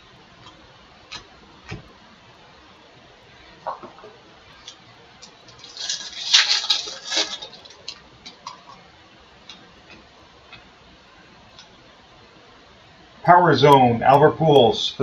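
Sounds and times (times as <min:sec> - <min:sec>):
wrapper crinkling rustle: 0:04.0 - 0:08.8.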